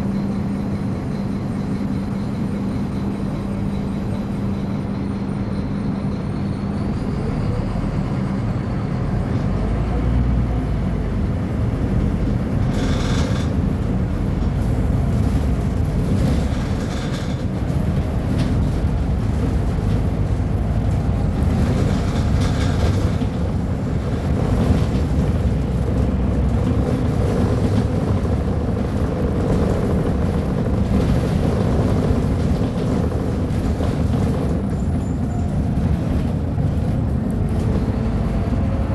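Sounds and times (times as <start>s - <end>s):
bus diesel engine droning: 0.0s - 38.9s
bus body clattering: 10.8s - 38.9s.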